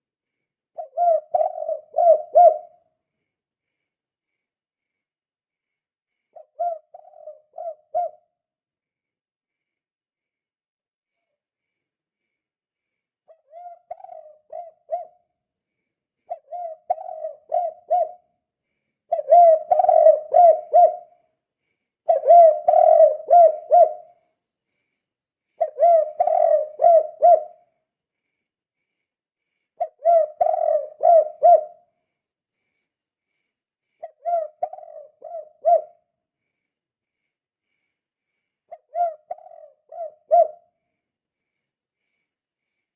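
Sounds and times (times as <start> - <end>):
dove cooing: 0.8 - 2.8, 6.4 - 8.3, 13.3 - 15.2, 16.3 - 18.2, 19.1 - 21.2, 22.0 - 24.2, 25.6 - 27.7, 29.8 - 31.9, 34.0 - 36.0, 38.7 - 40.6.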